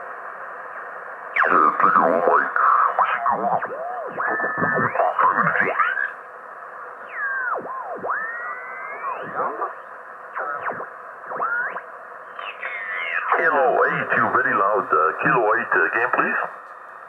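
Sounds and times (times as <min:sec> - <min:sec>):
hissy radio static: 0:00.0 - 0:17.0
radio whistles: 0:01.4 - 0:02.1, 0:02.7 - 0:06.2, 0:06.8 - 0:14.6
garbled sideband radio voices: 0:01.4 - 0:16.6.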